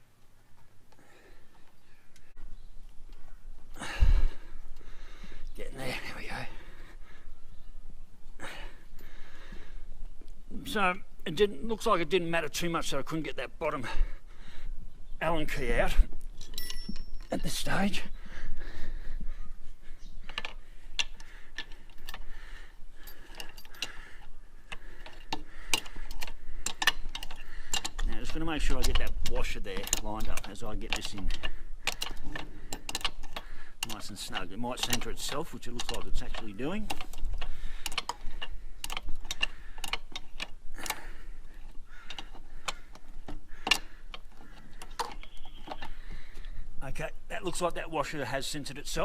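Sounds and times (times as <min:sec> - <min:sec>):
metallic clicks of hand tools: 0:23.0 - 0:41.2, 0:42.0 - 0:46.0.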